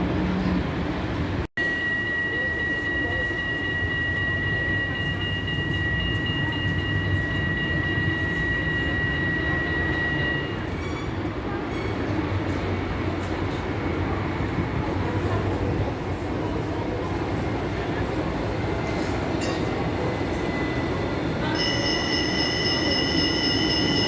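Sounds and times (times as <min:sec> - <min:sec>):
tram rumbling on rails: 0:00.0 - 0:24.0
high squeal of tram: 0:01.6 - 0:12.8, 0:17.8 - 0:24.0.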